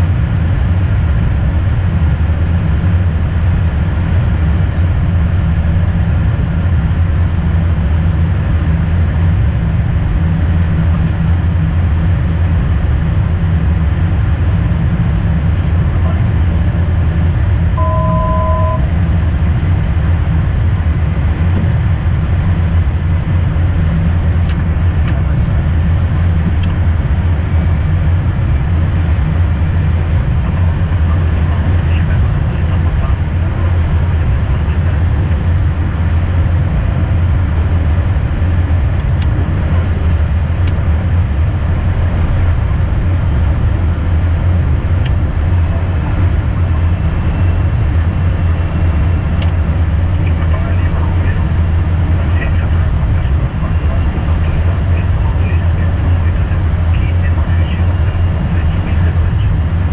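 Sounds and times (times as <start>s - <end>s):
jet cockpit rumble: 0.0s - 59.9s
electronic two-note tone: 17.8s - 19.0s.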